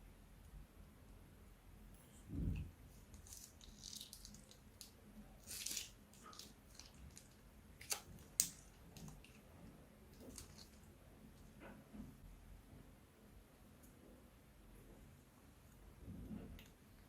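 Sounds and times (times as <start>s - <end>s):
slime squishing: 2.4s - 9.5s, 10.1s - 10.9s.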